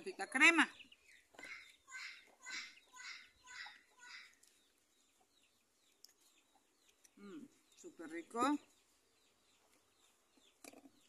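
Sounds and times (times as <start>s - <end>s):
bird calling: 0.0s - 5.5s.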